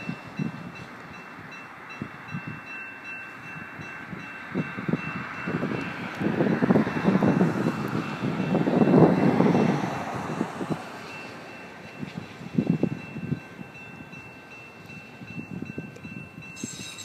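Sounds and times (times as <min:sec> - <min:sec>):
train rumble: 0:00.0 - 0:17.0
crossing signal high tone: 0:16.3 - 0:17.0.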